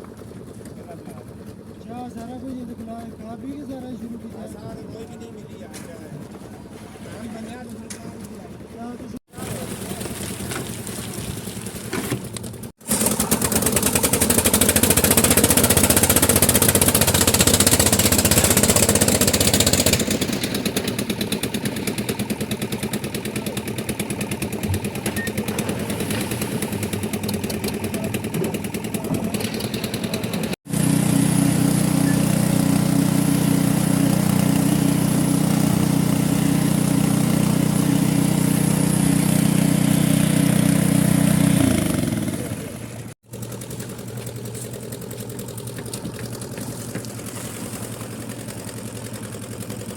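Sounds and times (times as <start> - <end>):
concrete mixer engine running: 0.0 - 49.9.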